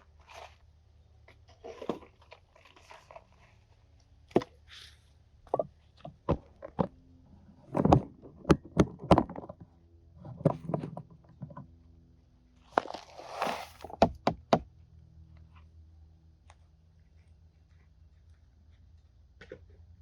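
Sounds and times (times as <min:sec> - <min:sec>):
rustling scrape: 0:12.6 - 0:14.0.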